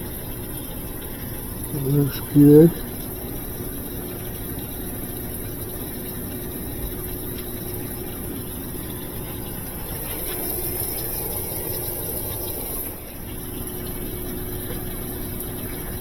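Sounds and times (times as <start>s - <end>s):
washing machine humming: 0.0s - 16.0s.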